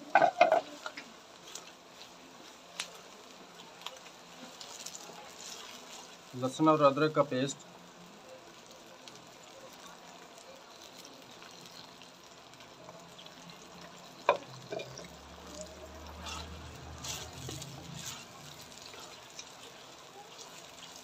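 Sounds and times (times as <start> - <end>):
onions sizzling in a pot: 0.0 - 21.0
spoon scraping while stirring: 16.1 - 21.0.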